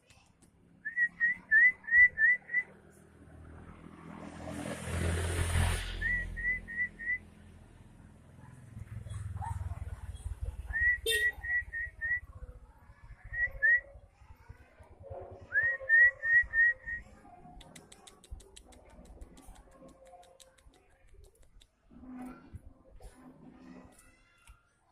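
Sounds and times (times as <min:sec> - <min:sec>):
bird whistling rising notes: 0:05.9 - 0:07.2.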